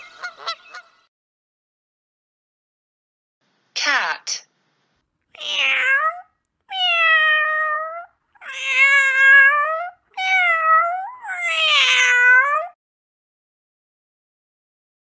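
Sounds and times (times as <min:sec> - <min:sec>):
cat meowing: 0:05.3 - 0:12.8.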